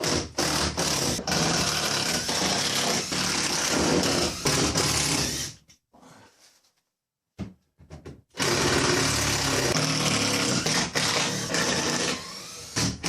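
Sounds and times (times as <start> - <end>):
power drill running: 8.4 - 13.0.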